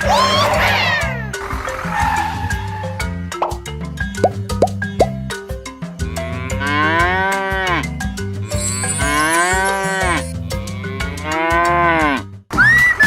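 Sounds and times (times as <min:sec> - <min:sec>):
background music with steady beat: 0:01.4 - 0:08.4
cow mooing: 0:08.5 - 0:12.2.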